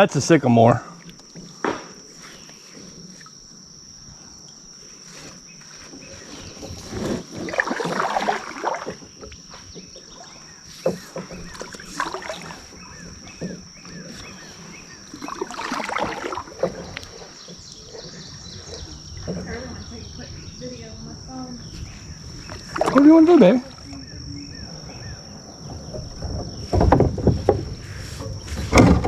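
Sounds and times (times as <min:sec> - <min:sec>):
paddle strokes splashing in water: 0:04.8 - 0:21.1, 0:21.7 - 0:29.0
high-pitched insect drone: 0:07.4 - 0:28.9.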